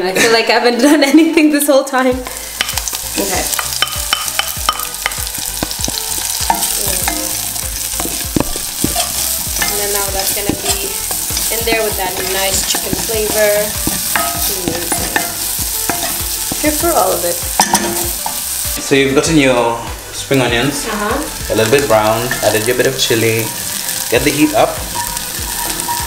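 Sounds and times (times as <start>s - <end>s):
onions sizzling in a saucepan: 2.1s - 26.0s
wooden spoon scraping a pan: 2.3s - 18.7s.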